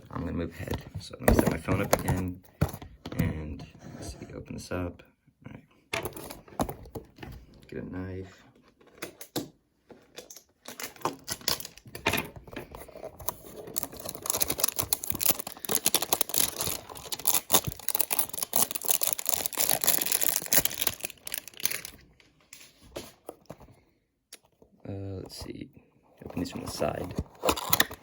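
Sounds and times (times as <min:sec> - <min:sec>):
plastic crinkling and crackling: 0:10.7 - 0:22.1
knife slitting plastic wrapping: 0:13.7 - 0:21.9.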